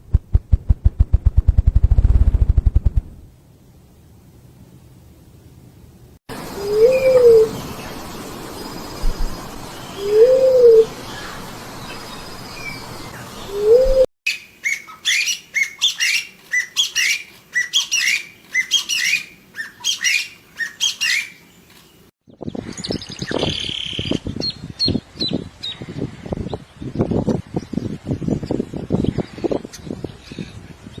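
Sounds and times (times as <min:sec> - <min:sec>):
hissy background: 0:03.2 - 0:22.1
low hooting bird call: 0:06.5 - 0:07.9, 0:09.9 - 0:11.5, 0:13.2 - 0:21.4.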